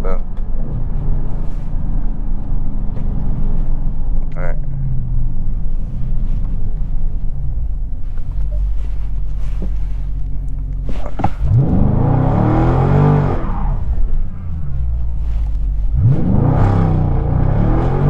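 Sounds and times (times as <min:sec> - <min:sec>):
car engine rumbling and revving: 0:00.0 - 0:18.0
sharp exhaust cracks: 0:04.4 - 0:18.0.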